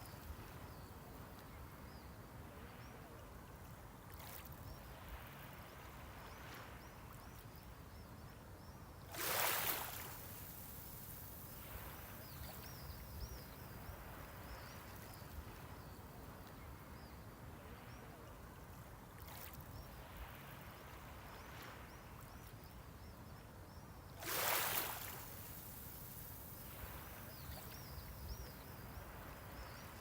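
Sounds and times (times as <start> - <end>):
low surf hiss: 0.0 - 30.0
sea waves washing onto shore: 9.1 - 14.6, 24.2 - 30.0.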